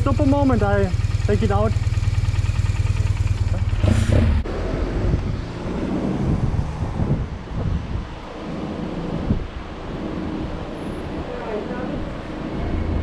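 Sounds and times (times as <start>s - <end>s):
motorcycle engine idling: 0.0s - 4.5s
wind noise on microphone: 3.8s - 13.0s.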